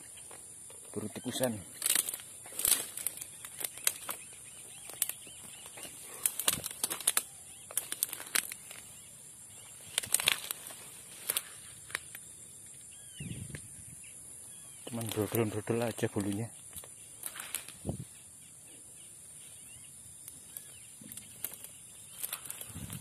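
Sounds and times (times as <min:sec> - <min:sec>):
insects droning: 0:00.0 - 0:23.0
walking through rustling vegetation: 0:01.3 - 0:12.2, 0:14.9 - 0:18.1, 0:21.1 - 0:23.0.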